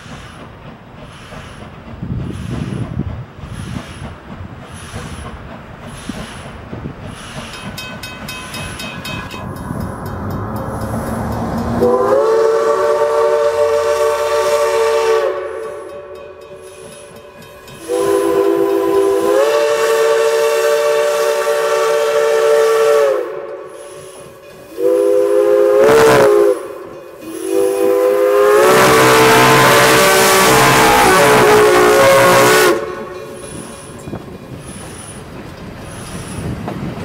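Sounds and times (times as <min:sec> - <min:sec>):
steam engine hissing: 0:00.0 - 0:37.0
steam locomotive whistle blasts: 0:10.8 - 0:34.2.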